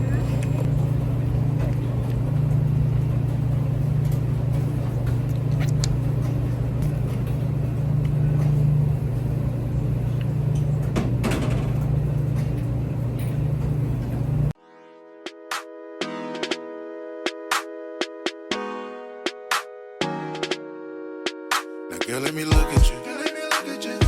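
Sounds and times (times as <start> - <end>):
low mechanical hum: 0.0 - 14.6.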